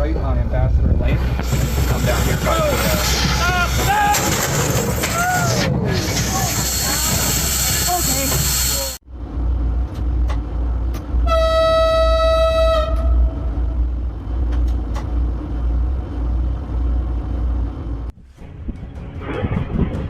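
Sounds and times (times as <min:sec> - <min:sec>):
passing train rumble: 0:00.0 - 0:20.0
train horn blast: 0:11.2 - 0:13.5.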